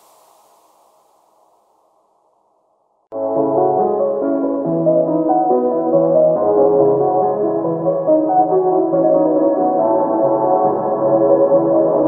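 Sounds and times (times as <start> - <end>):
heavy rain hiss: 0.0 - 1.3.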